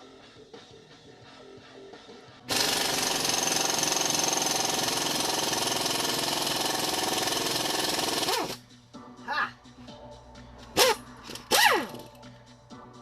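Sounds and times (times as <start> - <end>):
power tool running: 2.5 - 8.6.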